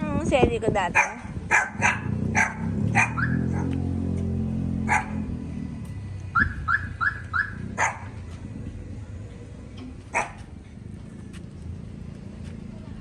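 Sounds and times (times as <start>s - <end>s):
dog barking and yipping: 1.0s - 3.8s, 4.8s - 5.3s, 6.4s - 8.2s, 10.1s - 10.5s.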